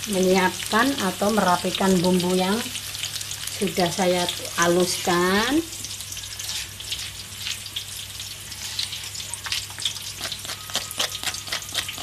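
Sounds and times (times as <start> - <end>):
onions frying in hot oil: 0.0 - 12.0
spatula scraping stone mortar: 10.2 - 12.0.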